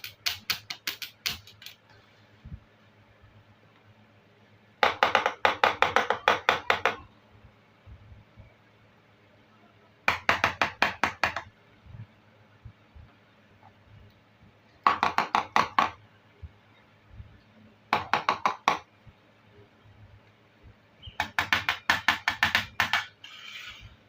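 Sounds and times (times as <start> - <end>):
plastic toy pieces tapping: 0.0 - 1.8.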